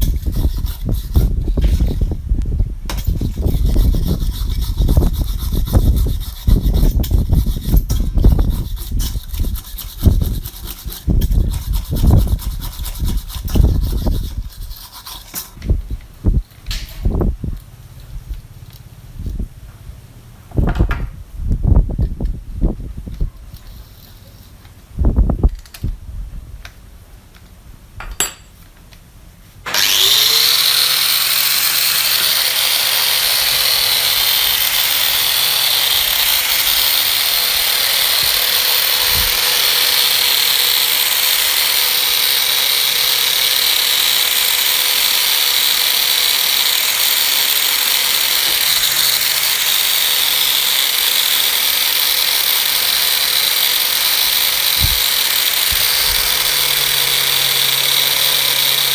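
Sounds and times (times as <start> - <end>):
power tool motor whining: 29.7 - 58.9.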